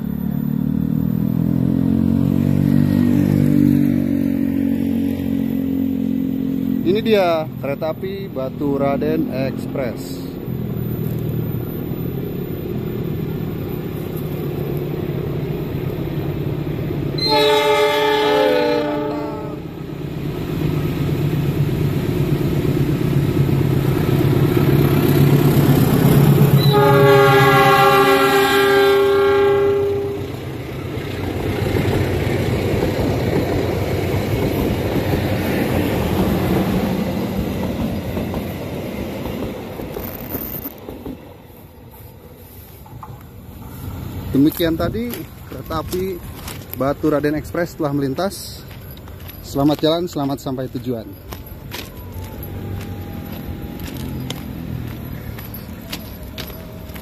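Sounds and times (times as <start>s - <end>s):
diesel locomotive engine rumble: 0.0s - 57.0s
train wheel and rail noise: 2.1s - 57.0s
locomotive horn blasts: 17.2s - 19.8s, 26.6s - 30.4s.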